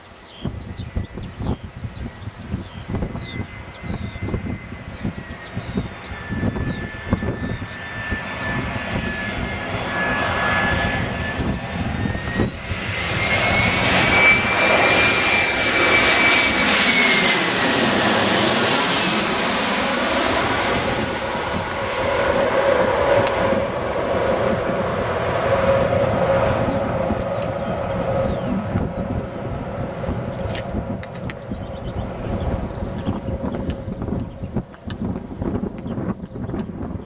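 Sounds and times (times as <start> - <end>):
jet engines whining: 0.0 - 37.0.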